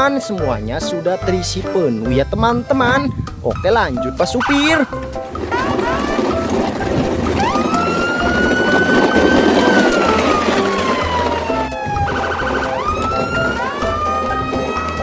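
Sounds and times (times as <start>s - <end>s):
background music with steady beat: 0.0s - 15.0s
siren wailing: 5.4s - 6.6s, 7.2s - 15.0s.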